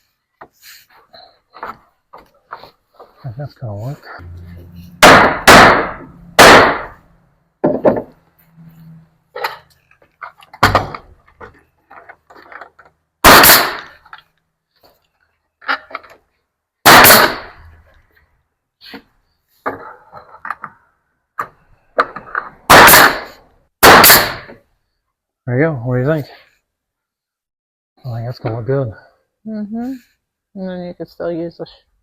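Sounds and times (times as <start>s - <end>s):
nail gun shots: 5.0s - 7.0s, 13.2s - 14.0s, 16.8s - 17.6s, 22.7s - 24.6s
knocks of wood: 7.6s - 8.1s, 10.5s - 12.5s.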